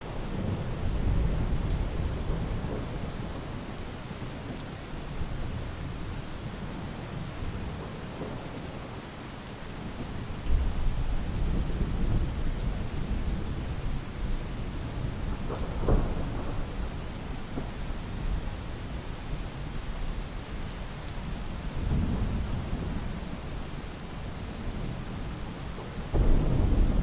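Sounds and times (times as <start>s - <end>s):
steady rain falling: 0.0s - 27.0s
rolling thunder: 14.9s - 17.7s, 26.1s - 27.0s.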